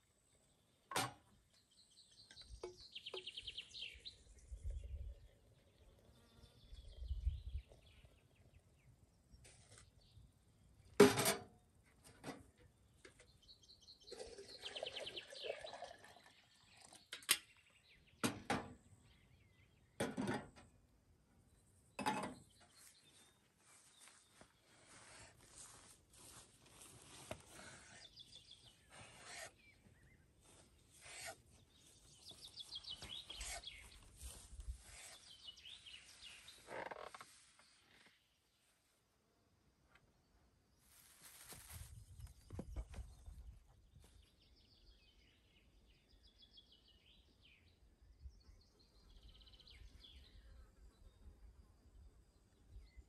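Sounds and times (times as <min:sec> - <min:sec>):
birds chirping: 0:27.1 - 0:37.2.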